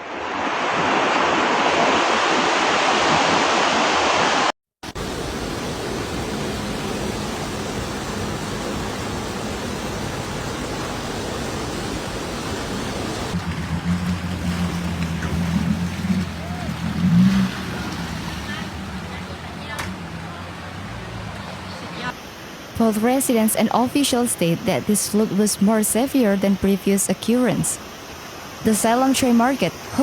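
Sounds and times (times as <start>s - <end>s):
rushing floodwater: 0.0s - 30.0s
low motor hum: 5.0s - 22.1s.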